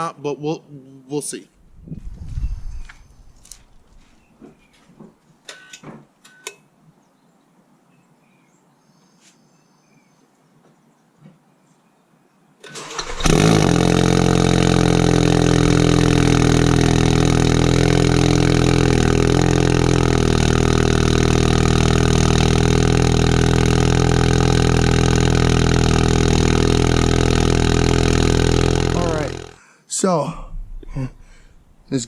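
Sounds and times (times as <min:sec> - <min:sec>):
car engine starting and idling: 0:12.6 - 0:29.6, 0:30.3 - 0:32.0.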